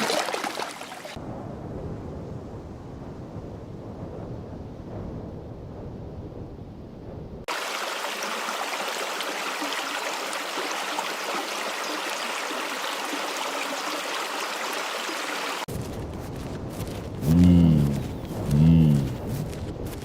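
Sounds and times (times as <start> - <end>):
running water rushing: 0.0 - 1.2, 7.5 - 15.7
low rumble: 1.2 - 7.5, 15.7 - 20.0.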